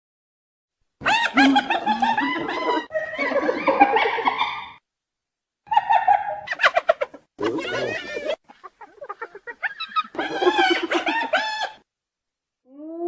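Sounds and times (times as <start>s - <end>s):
hyena giggling calls: 1.0s - 4.8s, 5.7s - 11.8s.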